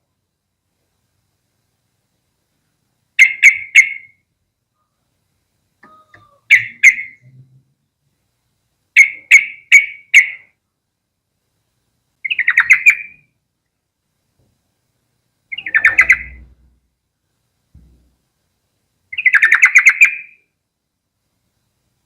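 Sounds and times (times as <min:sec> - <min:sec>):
bird calling sharp notes: 0:03.2 - 0:04.2, 0:05.8 - 0:07.4, 0:09.0 - 0:10.5, 0:12.2 - 0:13.3, 0:15.5 - 0:16.6, 0:19.1 - 0:20.4.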